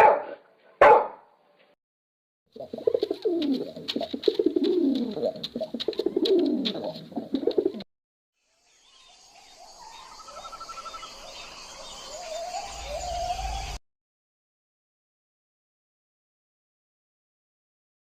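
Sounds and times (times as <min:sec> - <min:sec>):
birds chirping: 0:02.6 - 0:07.8, 0:08.7 - 0:13.8
pigeons cooing: 0:02.6 - 0:07.8.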